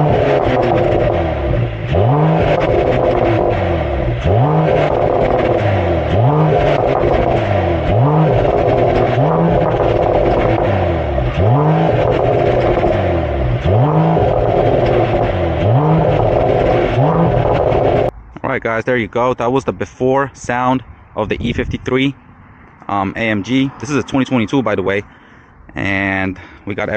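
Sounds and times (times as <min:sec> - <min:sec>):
car engine revving: 0:00.0 - 0:18.1.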